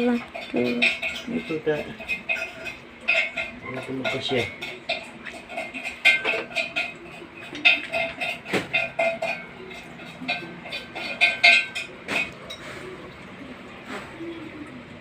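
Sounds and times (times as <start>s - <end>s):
metal clinking and tapping: 0.0s - 12.7s.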